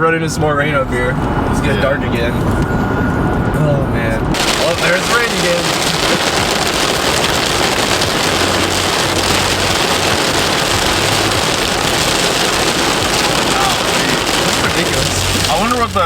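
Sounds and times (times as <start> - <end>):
tyre and road noise: 0.0 - 16.0
heavy rain on car roof: 4.3 - 16.0.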